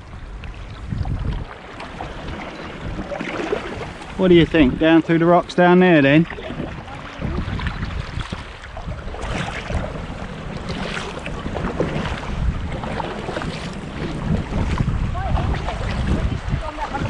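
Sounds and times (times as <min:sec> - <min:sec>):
water splashing from paddling: 0:00.0 - 0:17.0
wind rumbling on microphone: 0:00.0 - 0:17.0.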